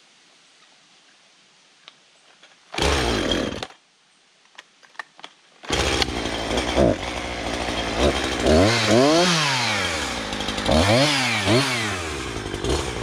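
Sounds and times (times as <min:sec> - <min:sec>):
chainsaw engine starting: 0:02.7 - 0:03.8, 0:05.6 - 0:13.0.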